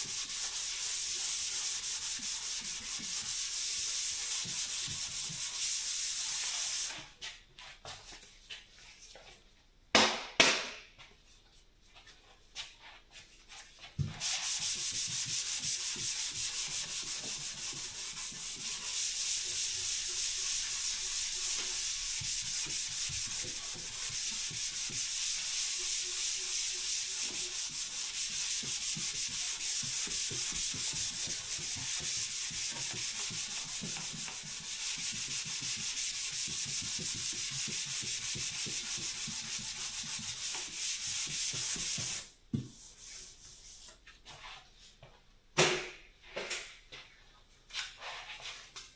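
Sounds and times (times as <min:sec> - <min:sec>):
sandpaper rubbing: 0:00.0 - 0:07.0, 0:14.2 - 0:42.3.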